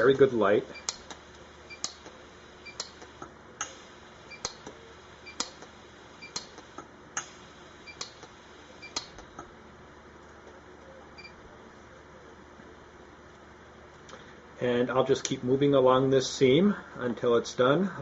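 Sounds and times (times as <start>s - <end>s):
pulse welder snapping: 0.0s - 9.5s.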